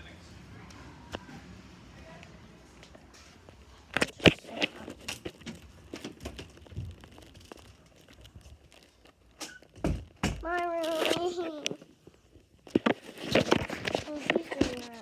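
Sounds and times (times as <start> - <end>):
rustling: 2.9 - 15.0.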